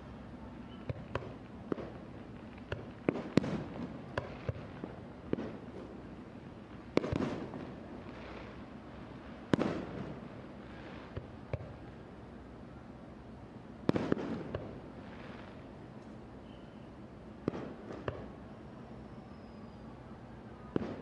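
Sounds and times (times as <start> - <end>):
small firework pops: 0.7 - 6.0, 6.9 - 8.6, 9.5 - 12.0, 13.8 - 16.2, 17.4 - 18.4, 20.7 - 21.0.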